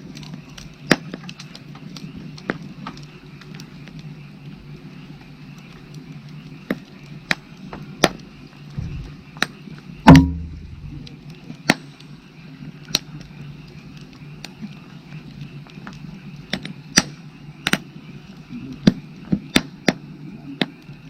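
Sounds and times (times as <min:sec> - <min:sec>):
firewood crackling and popping: 0:00.0 - 0:21.0
loud pop with thud: 0:10.1 - 0:10.7.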